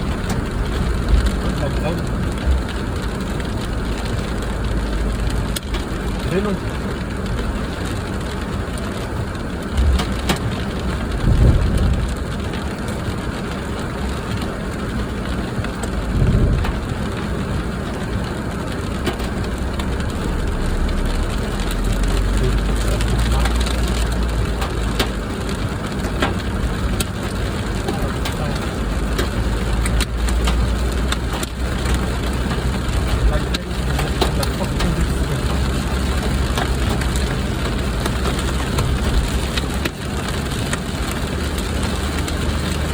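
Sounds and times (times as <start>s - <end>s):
low bumps: 0.0s - 4.2s, 9.7s - 12.6s, 15.9s - 40.0s
heavy rain on a car: 0.0s - 42.9s
low engine rumble: 0.0s - 42.9s.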